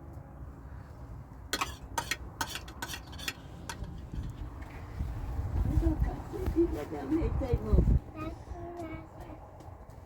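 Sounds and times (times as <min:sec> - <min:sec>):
utensil clinking against dish: 0:01.5 - 0:03.9.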